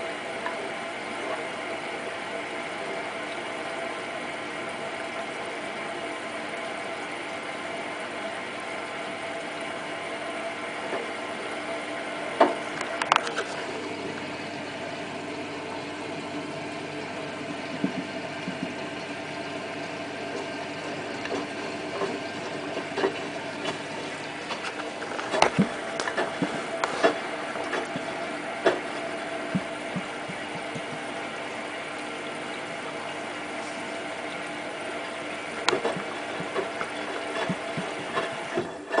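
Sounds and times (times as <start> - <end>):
washing machine hum: 0.0 - 39.0
washing machine clicks and knocks: 17.5 - 19.1, 25.3 - 31.2.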